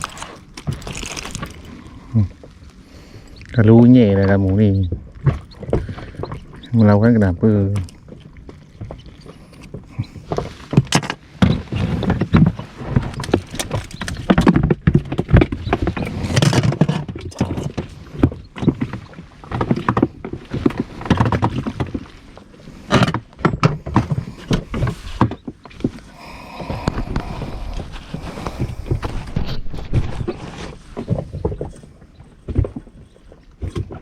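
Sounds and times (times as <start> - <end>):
water splashing: 0.0 - 2.2
fish thrashing against boat: 0.0 - 34.0.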